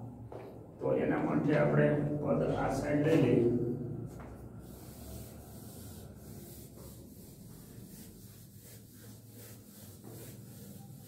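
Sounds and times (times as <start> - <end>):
duster rubbing on chalkboard: 4.6 - 11.0.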